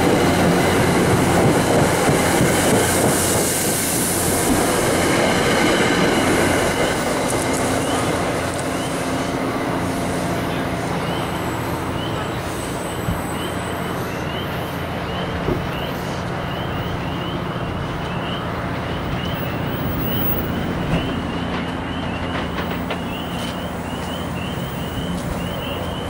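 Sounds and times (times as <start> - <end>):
diesel locomotive engine drone: 0.0 - 26.0
train wheels rumbling on rails: 0.0 - 26.0
light track clicks: 20.8 - 26.0.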